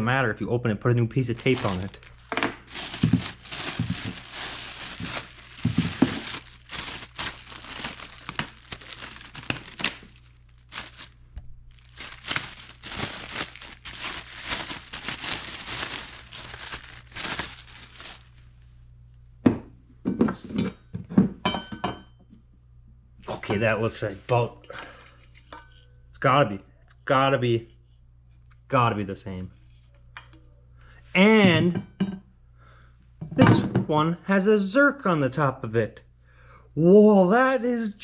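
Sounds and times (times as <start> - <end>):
packaging crinkling and tearing: 1.3 - 18.5.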